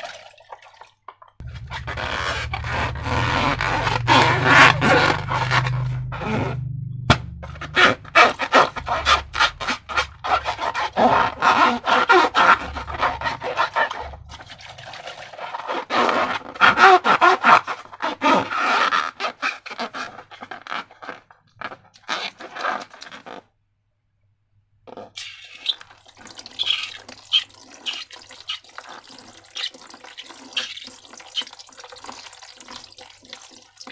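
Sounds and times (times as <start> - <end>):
slime squelching by hand: 1.4 - 18.7, 25.2 - 33.9.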